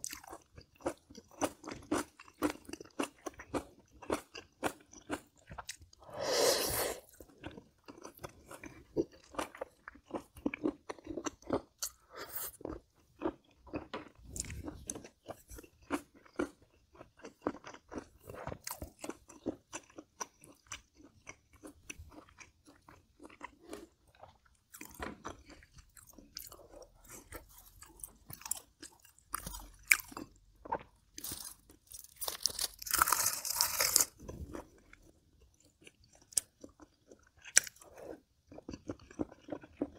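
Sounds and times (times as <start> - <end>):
crunchy bites: 24.7 - 35.0.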